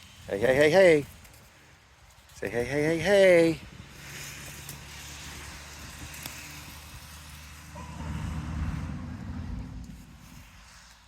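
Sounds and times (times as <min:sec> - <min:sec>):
low engine rumble: 0:05.2 - 0:10.8.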